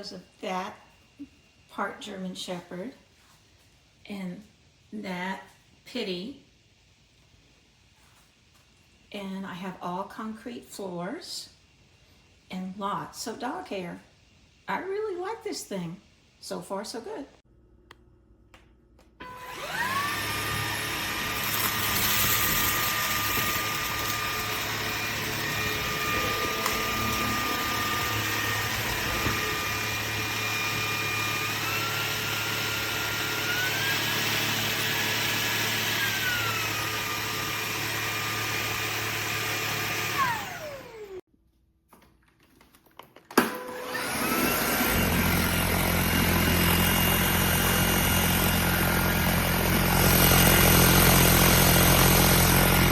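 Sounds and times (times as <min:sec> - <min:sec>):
vacuum cleaner motor whining: 0:19.2 - 0:41.2, 0:43.4 - 0:52.9.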